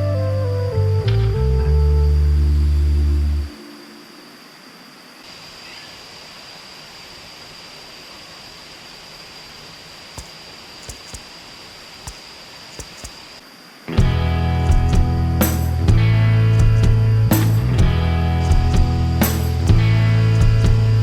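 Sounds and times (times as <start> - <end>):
faint high tone: 0.0 - 5.7
background music: 14.0 - 21.0.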